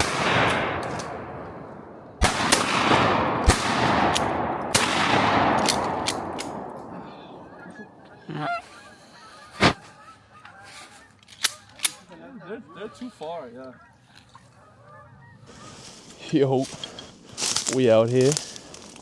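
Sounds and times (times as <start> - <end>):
shotgun shots with echo: 0.0 - 7.8.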